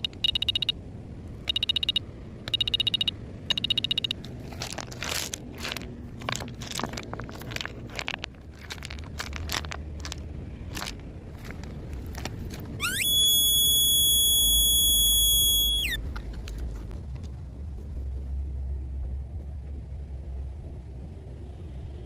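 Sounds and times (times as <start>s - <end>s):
high whistling tone: 12.8s - 16.0s.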